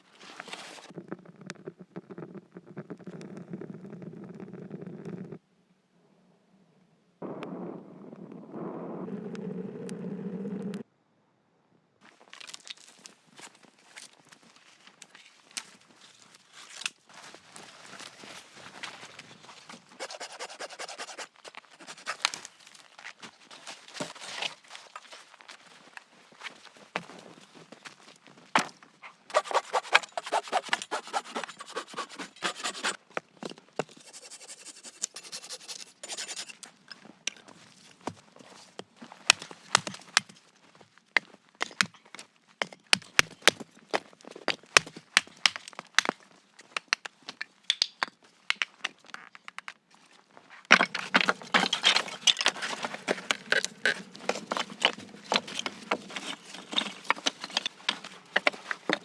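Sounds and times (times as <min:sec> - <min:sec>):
scraping and rustling: 0:19.8 - 0:22.6, 0:29.3 - 0:33.0, 0:33.8 - 0:36.7, 0:50.6 - 0:59.0.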